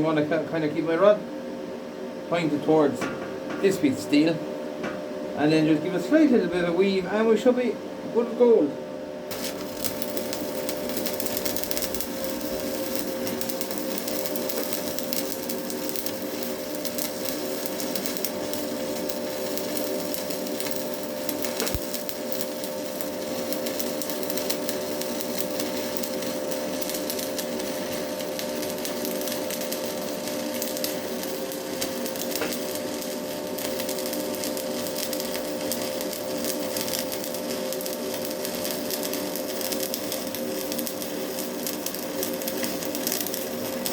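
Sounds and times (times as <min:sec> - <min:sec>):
steady hum: 0:00.0 - 0:43.9
welding arc crackling: 0:09.3 - 0:43.9.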